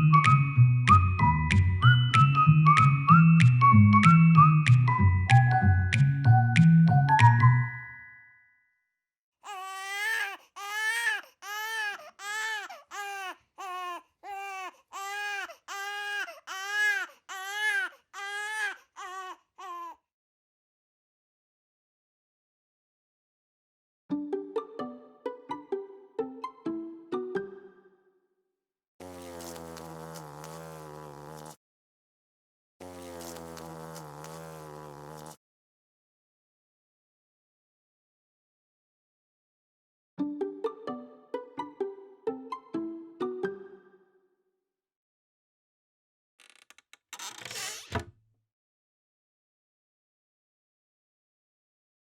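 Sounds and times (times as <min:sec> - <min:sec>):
infant crying: 0:09.4 - 0:20.0
hornet wings buzzing: 0:29.0 - 0:31.6, 0:32.8 - 0:35.4.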